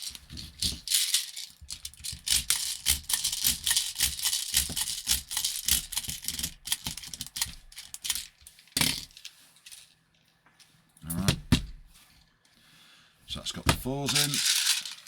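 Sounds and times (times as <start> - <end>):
plastic clicking and rattling: 0.1 - 9.8.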